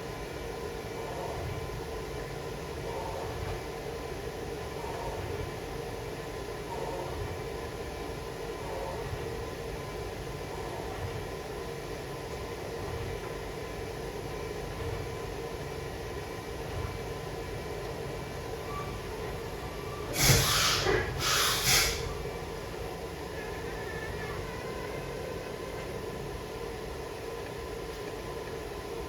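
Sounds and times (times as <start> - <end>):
machine shop hum: 0.0 - 29.0
short hissing bursts: 20.1 - 22.1.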